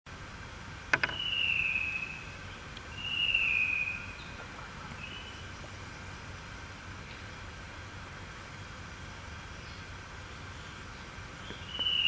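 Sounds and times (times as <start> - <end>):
bird whistling: 1.0 - 4.3, 5.0 - 5.5, 11.4 - 12.0.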